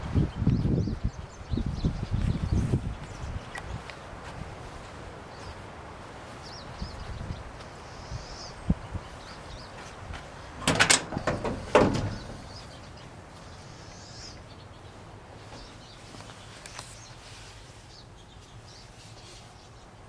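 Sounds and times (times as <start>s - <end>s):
outdoor background noise: 0.0s - 20.0s
clattering knocks: 10.6s - 12.8s.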